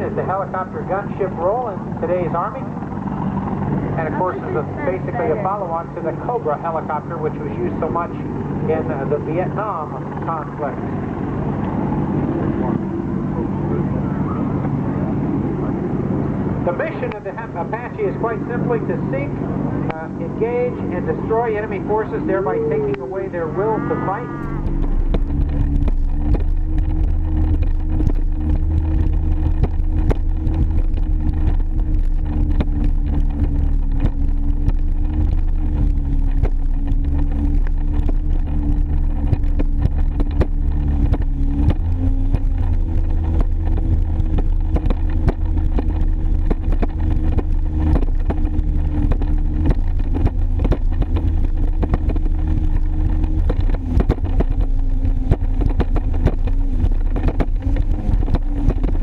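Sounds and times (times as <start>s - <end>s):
jet ski engine running: 0.0s - 59.0s
wind buffeting microphone: 0.0s - 59.0s.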